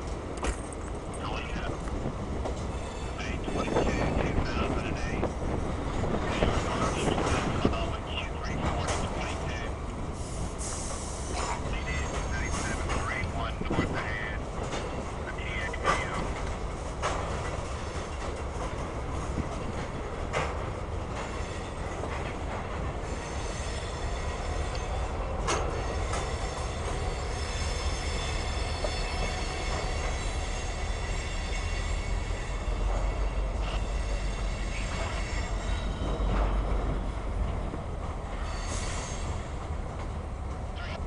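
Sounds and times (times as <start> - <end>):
wheels rumbling on rail: 0.0 - 41.0
high-pitched wheel squeal: 38.4 - 39.4.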